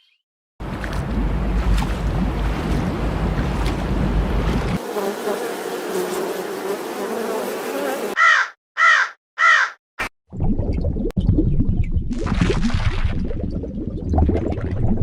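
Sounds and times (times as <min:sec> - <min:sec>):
low noisy rumble: 0:00.6 - 0:04.8
insect buzzing: 0:04.4 - 0:08.2
bird cawing: 0:08.2 - 0:09.8.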